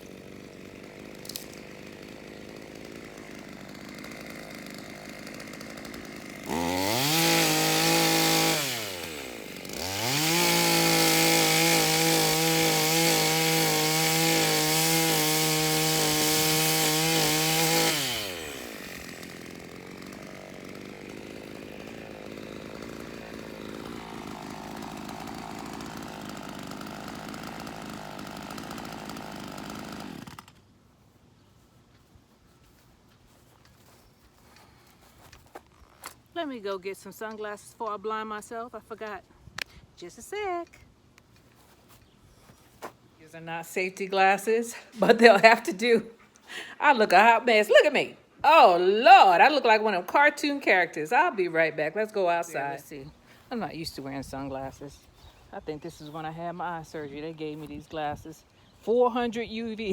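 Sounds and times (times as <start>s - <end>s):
chainsaw idling and revving: 0.0s - 30.8s, 43.4s - 59.9s.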